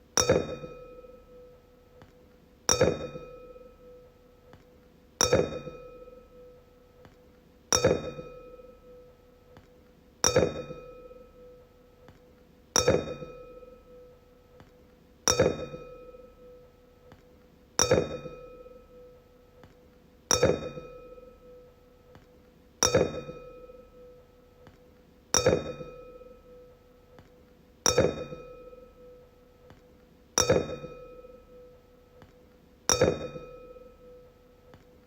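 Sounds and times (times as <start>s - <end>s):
wine glass taps ringing: 0.2s - 1.4s, 10.2s - 11.2s, 25.4s - 26.6s, 27.9s - 29.2s, 30.4s - 31.7s, 32.9s - 34.3s.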